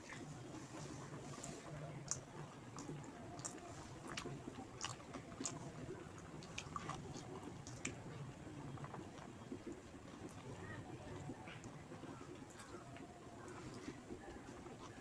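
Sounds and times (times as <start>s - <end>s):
person chewing food: 1.4s - 10.4s.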